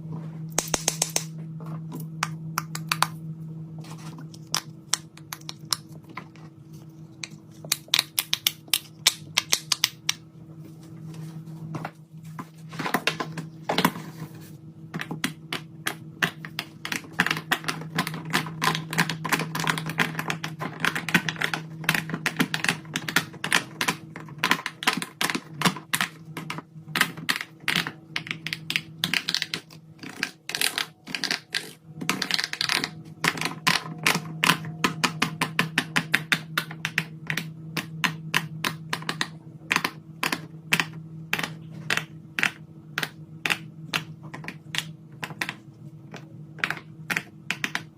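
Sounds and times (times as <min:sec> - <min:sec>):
low steady hum: 0:00.0 - 0:47.9
fidget toys clicking and tapping: 0:00.6 - 0:01.3, 0:07.2 - 0:10.2, 0:15.0 - 0:47.9.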